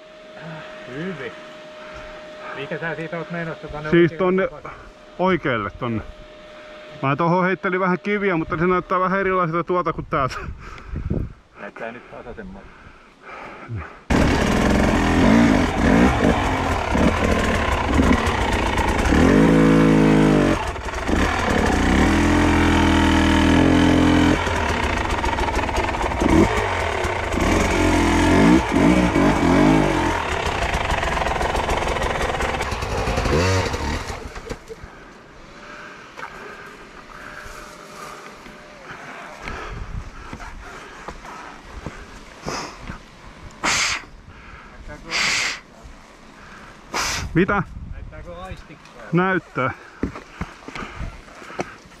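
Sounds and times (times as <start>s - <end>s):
motorcycle engine revving: 14.1s - 34.8s.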